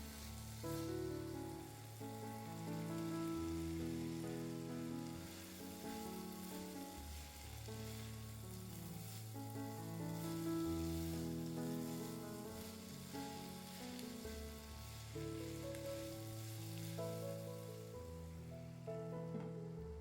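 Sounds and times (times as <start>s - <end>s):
food frying in a pan: 0.0s - 18.5s
slow held chords music: 0.0s - 20.0s.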